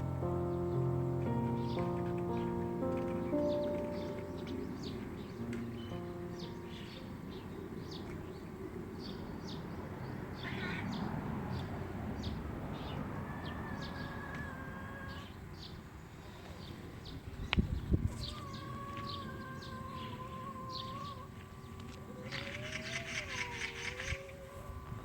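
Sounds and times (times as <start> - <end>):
low outdoor background: 0.0 - 11.0
small birds chirping: 0.0 - 13.0.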